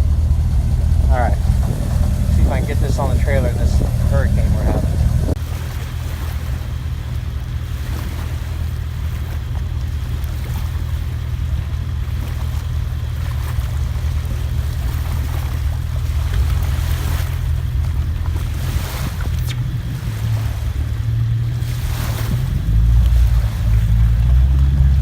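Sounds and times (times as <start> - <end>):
boat engine idling: 0.0 - 25.0
choppy water: 0.0 - 25.0
wind buffeting microphone: 0.0 - 25.0.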